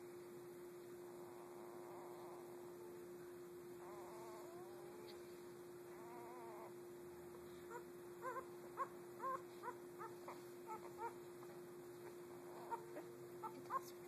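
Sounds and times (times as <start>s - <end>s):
puppy whining and squealing: 1.2s - 3.0s, 3.8s - 5.2s, 5.9s - 6.8s, 7.7s - 11.2s, 12.0s - 14.0s.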